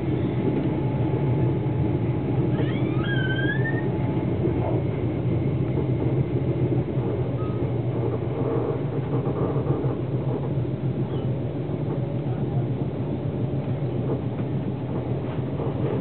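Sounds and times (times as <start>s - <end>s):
train rumbling: 0.0s - 16.0s
short high squeal: 2.5s - 4.0s.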